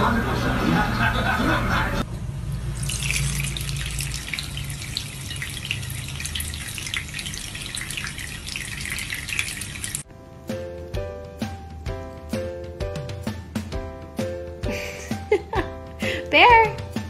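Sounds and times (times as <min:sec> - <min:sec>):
running water splashing: 0:02.6 - 0:10.1.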